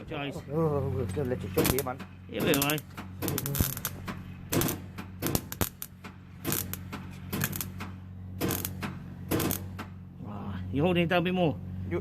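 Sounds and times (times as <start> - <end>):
electrical hum: 0.0 - 12.0
welding crackle: 1.6 - 9.8.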